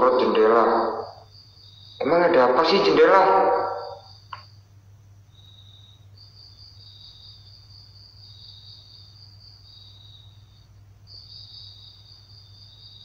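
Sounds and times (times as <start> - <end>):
crickets trilling: 0.0 - 13.0
faint low hum: 0.0 - 13.0.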